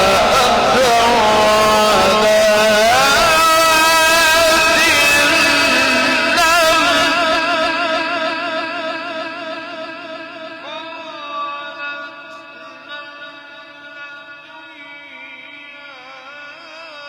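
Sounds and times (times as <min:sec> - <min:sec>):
man reciting with vibrato: 0:00.0 - 0:17.0.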